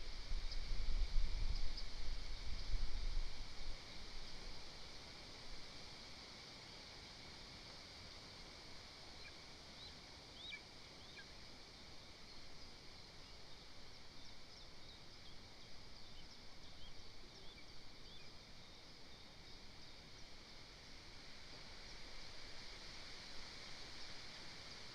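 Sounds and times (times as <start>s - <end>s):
steady forest hiss: 0.0s - 24.9s
small birds chirping: 12.0s - 20.5s.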